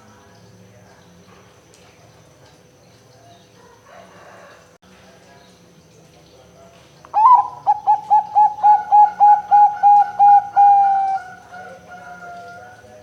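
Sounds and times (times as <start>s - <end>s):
dove cooing: 7.2s - 13.0s.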